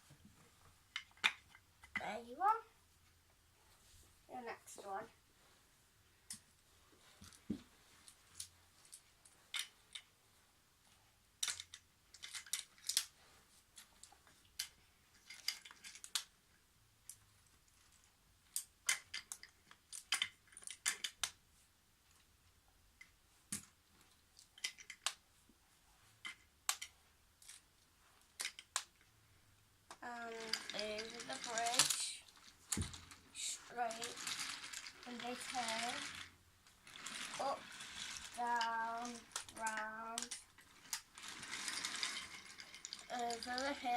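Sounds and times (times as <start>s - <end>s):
wooden toy track pieces clicking: 0.9s - 2.0s, 8.4s - 10.1s, 11.4s - 13.1s, 13.8s - 16.4s, 18.5s - 21.4s, 24.4s - 25.2s, 26.2s - 27.6s, 28.4s - 29.0s, 29.9s - 43.9s.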